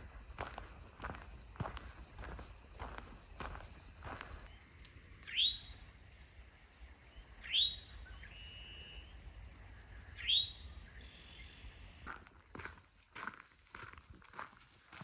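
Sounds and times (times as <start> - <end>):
songbird calling: 4.2 - 5.9, 6.5 - 12.0
short steady whistle: 8.2 - 9.2.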